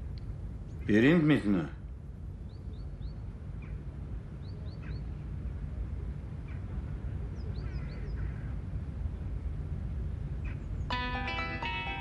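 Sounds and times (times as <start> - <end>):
small birds chirping: 2.4 - 5.4, 6.2 - 8.6.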